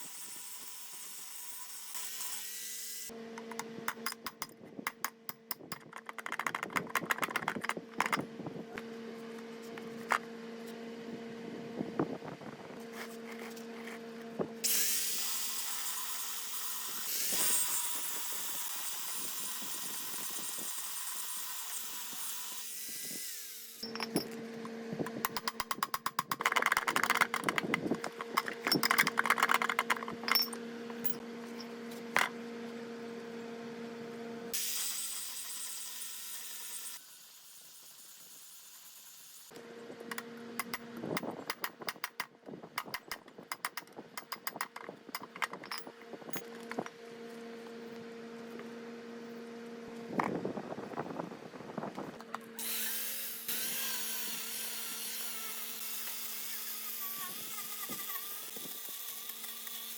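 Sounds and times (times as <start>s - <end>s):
rattling and scraping: 3.4s - 8.3s, 25.0s - 32.3s, 42.8s - 46.9s
power tool motor humming: 52.6s - 59.9s.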